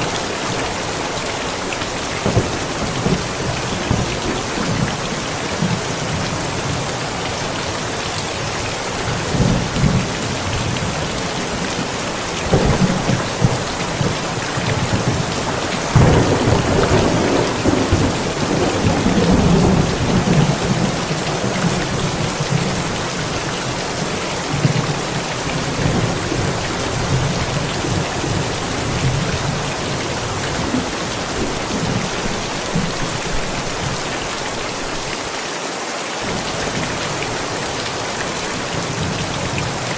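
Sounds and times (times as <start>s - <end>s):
thunder rumbling: 0.0s - 7.2s, 8.4s - 34.1s
heavy rain: 0.0s - 39.9s.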